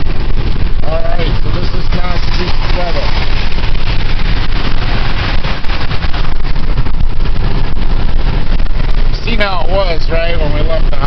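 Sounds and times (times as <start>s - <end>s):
road rumble inside truck cab: 0.0s - 11.0s
tyre hiss on wet road: 0.9s - 6.8s.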